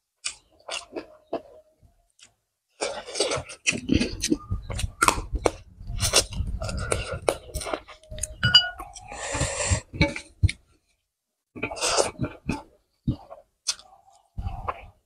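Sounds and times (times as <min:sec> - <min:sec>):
person chewing and lip-smacking: 0:00.2 - 0:01.6, 0:02.2 - 0:10.6, 0:11.6 - 0:14.9.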